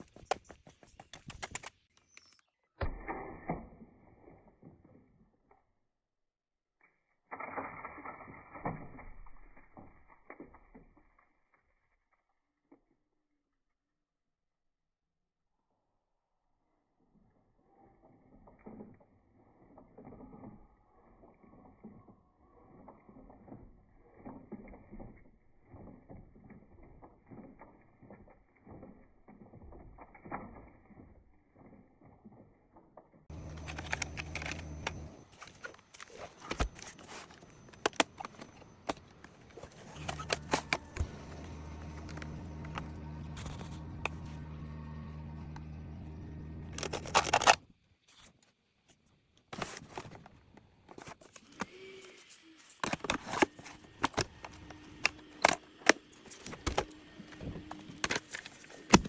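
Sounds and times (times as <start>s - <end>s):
clicks and rattles: 0.0s - 2.5s, 33.3s - 44.4s, 46.7s - 47.6s
robot vacuum motor hum: 33.3s - 47.6s, 52.8s - 59.0s.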